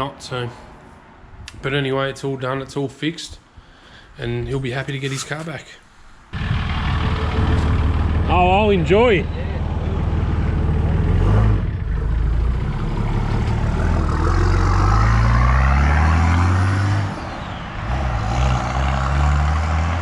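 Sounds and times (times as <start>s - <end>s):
diesel engine accelerating: 6.3s - 20.0s.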